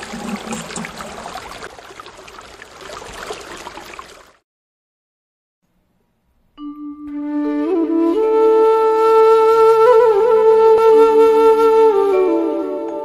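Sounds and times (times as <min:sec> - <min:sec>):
water trickling and splashing: 0:00.0 - 0:04.4
flute melody: 0:06.6 - 0:13.0.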